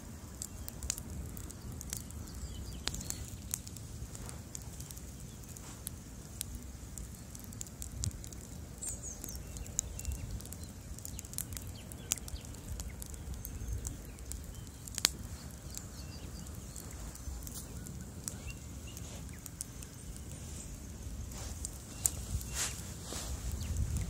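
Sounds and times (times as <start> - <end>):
fire crackling and popping: 0.0 - 24.0
low rumble of flames: 0.0 - 24.0.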